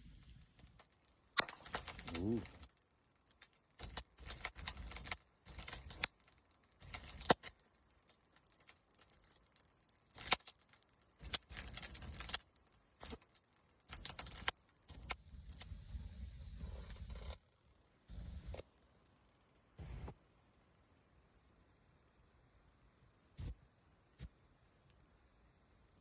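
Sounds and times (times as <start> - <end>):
wood fire crackling: 0.0 - 15.8.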